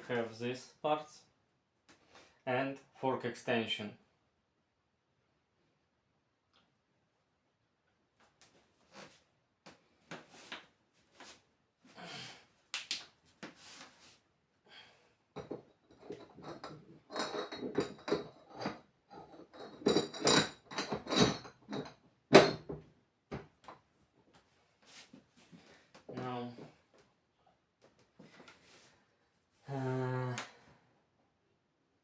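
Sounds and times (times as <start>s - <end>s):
metal parts clinking and knocking: 15.4s - 22.7s.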